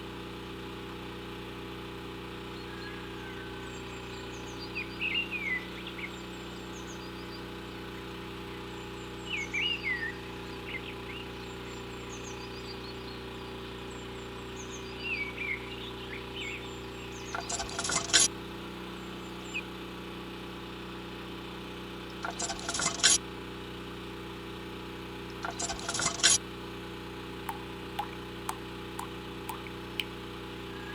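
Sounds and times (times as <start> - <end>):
birds chirping: 27.5 - 30.1.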